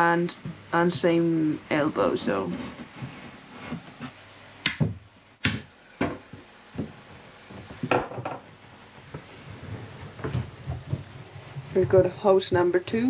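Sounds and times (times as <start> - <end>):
sharp knocks and clatters: 7.8 - 8.5.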